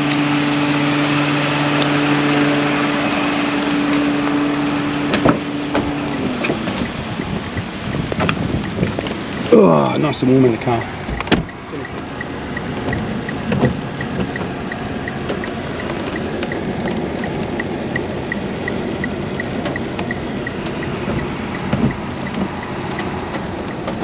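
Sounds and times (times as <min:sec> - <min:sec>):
car engine and road rumble: 0:00.0 - 0:24.0
high electronic ticking: 0:11.2 - 0:23.4.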